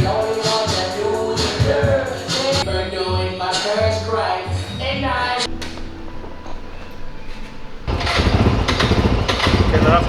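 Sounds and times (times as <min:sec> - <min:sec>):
low vehicle rumble: 0:05.5 - 0:10.0
small utility vehicle engine running: 0:07.8 - 0:10.0.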